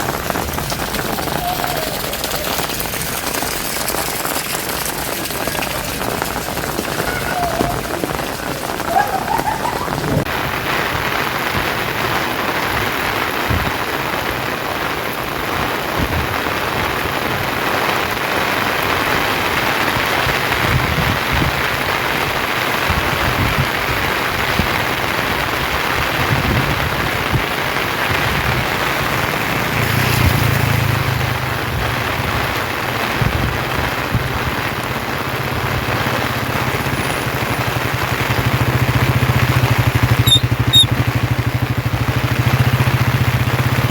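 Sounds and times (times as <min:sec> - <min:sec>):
heavy rain: 0:00.0 - 0:43.9
low engine hum: 0:37.7 - 0:43.9.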